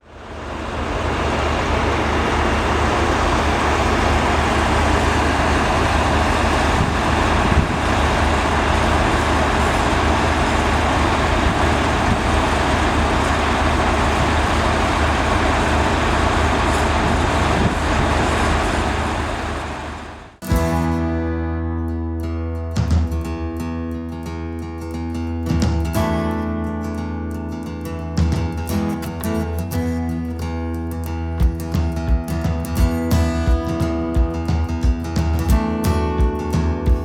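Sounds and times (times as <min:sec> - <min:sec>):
vehicle engine rumbling: 0:00.0 - 0:20.4.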